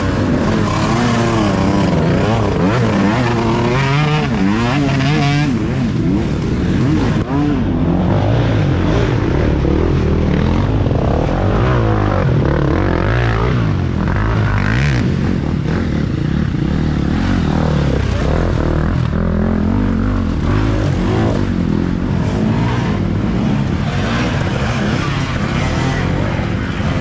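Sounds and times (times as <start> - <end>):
dirt bikes revving: 0.0 - 27.0.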